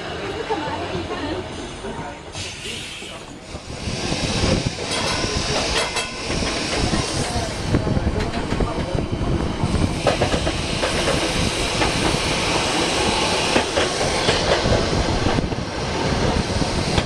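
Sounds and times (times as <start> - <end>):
tram body rattling: 3.4 - 17.0
tram wheels clicking over rail joints: 3.5 - 17.0.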